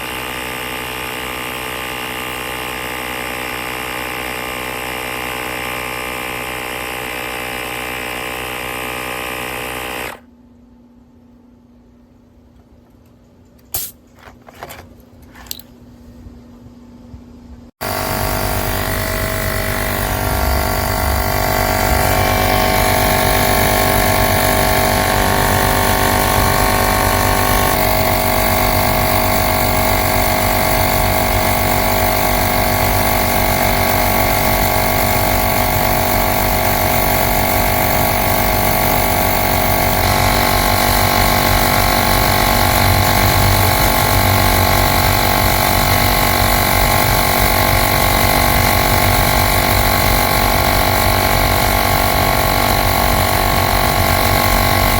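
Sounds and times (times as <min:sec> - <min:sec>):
electric air compressor running: 0:00.0 - 0:10.3, 0:17.8 - 0:54.9.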